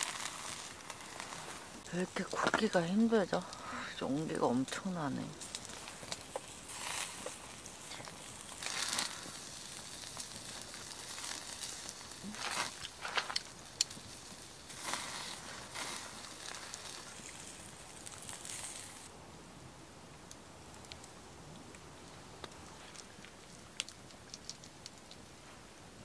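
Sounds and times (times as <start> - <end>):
meat sizzling on grill: 0.0 - 19.1
wood fire crackling: 0.0 - 26.0.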